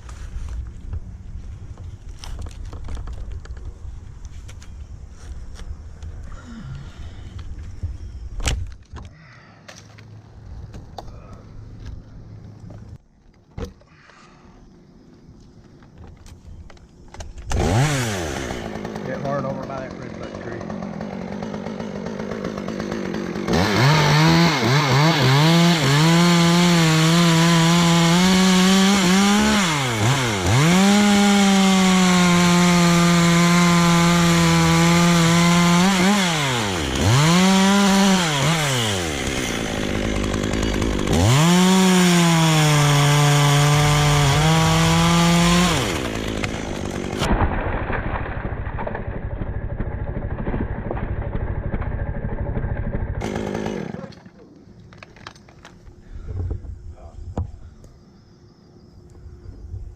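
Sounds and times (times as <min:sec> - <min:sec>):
chainsaw cutting wood: 0:17.1 - 0:55.8.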